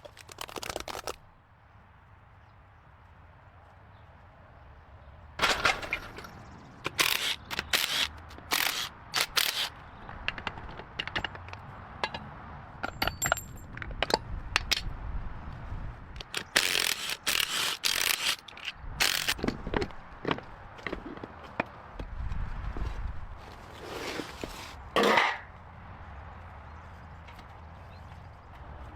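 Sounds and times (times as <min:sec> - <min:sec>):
metal tools clattering and scraping: 0:05.4 - 0:06.4, 0:12.8 - 0:13.7, 0:24.0 - 0:25.5
ratchet wrench clicking: 0:16.2 - 0:19.4.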